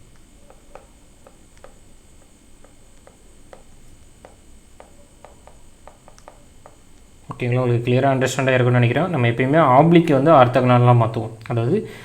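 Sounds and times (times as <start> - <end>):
low steady hiss: 0.0 - 12.0
faint writing clicks: 0.1 - 7.1.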